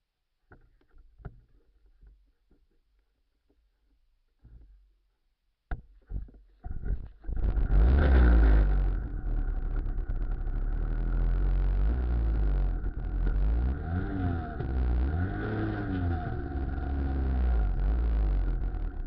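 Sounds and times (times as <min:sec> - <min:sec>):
engine starting and revving: 0:07.2 - 0:19.0.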